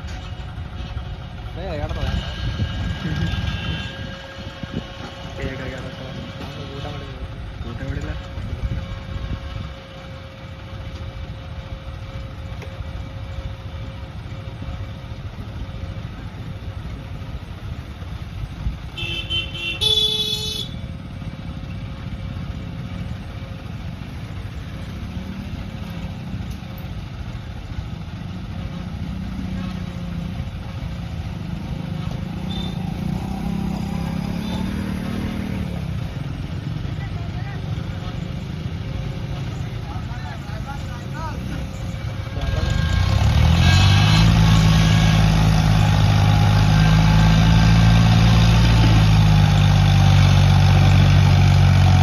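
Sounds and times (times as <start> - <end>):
vehicle engine running: 0.0 - 52.0
horn honks: 3.1 - 4.4, 18.9 - 20.9, 32.4 - 33.1, 34.0 - 35.2.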